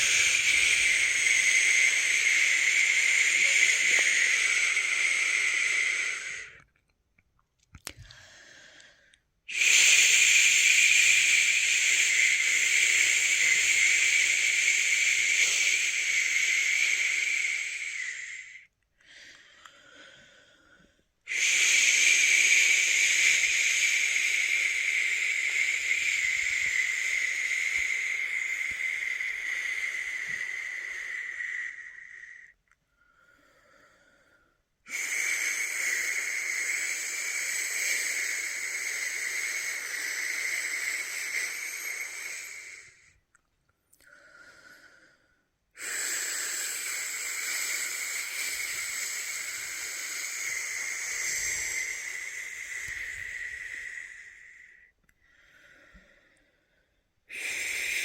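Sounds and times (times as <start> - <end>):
person shushing: 0.0 - 6.5, 46.6 - 54.8
faint in-breath: 0.0 - 6.7, 7.9 - 58.0.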